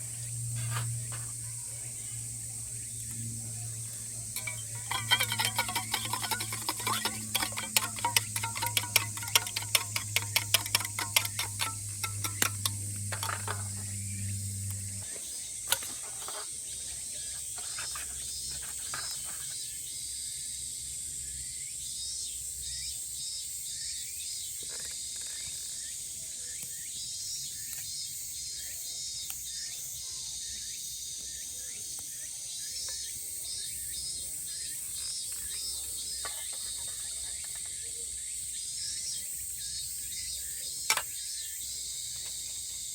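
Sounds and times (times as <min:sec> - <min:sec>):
low steady hum: 0:00.0 - 0:15.0
cicadas droning: 0:00.0 - 0:42.9
fast sharp ticks: 0:04.4 - 0:13.7.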